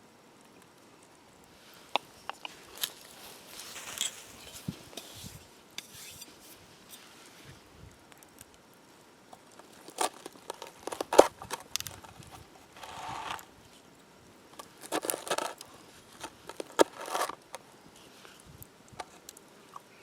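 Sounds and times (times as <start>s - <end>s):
crinkling and clicking: 9.3s - 13.5s, 14.5s - 20.0s.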